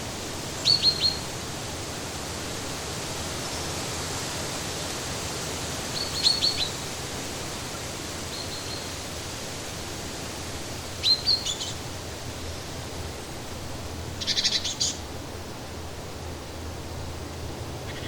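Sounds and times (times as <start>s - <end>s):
songbird whistled calls: 0.6s - 1.2s, 6.0s - 6.8s, 11.0s - 11.8s, 14.2s - 15.0s.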